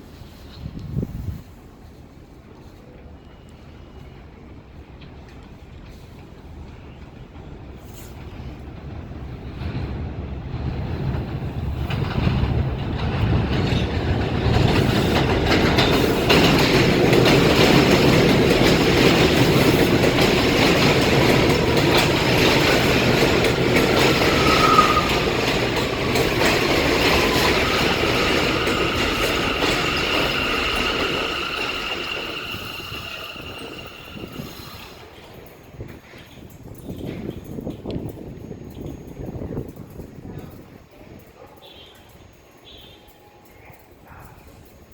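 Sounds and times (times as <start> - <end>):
train wheels rumbling on track: 0.0 - 44.9
high wheel squeal: 21.2 - 35.2
thin falling squeal: 24.0 - 25.5.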